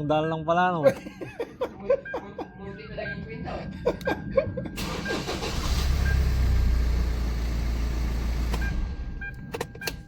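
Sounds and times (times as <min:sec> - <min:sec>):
car engine rumbling: 0:02.8 - 0:10.0.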